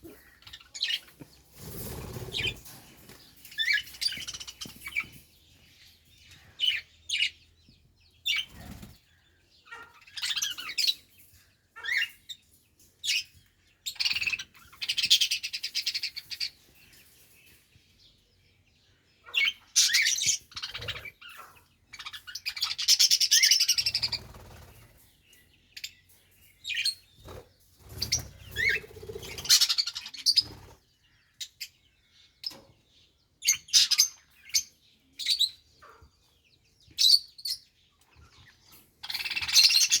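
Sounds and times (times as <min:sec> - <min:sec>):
budgerigars chirping and warbling: 0:00.0 - 0:40.0.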